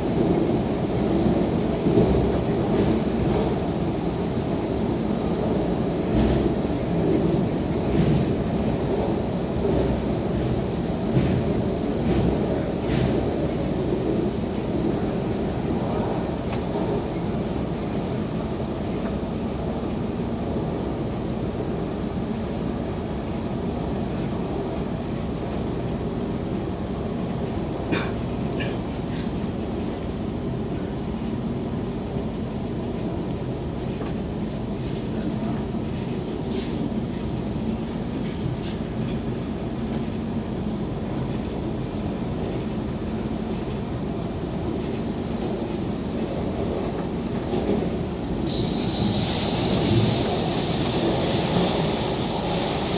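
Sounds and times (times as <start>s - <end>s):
metro train rumble: 0.0s - 52.9s
thin high whine: 44.6s - 52.9s.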